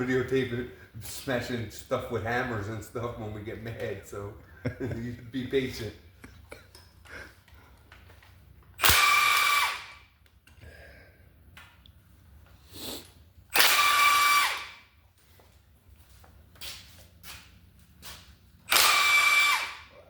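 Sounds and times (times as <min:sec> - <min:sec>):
power tool whining: 0:08.8 - 0:10.1, 0:13.5 - 0:14.8, 0:18.7 - 0:20.0.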